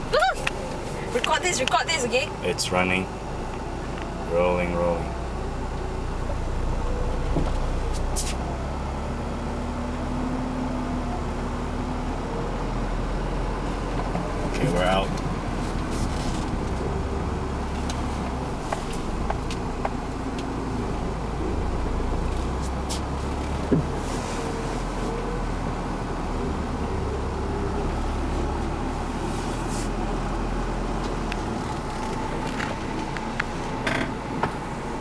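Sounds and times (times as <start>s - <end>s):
vehicle driving off-road: 0.0s - 35.0s
knocks inside vehicle: 23.6s - 23.9s.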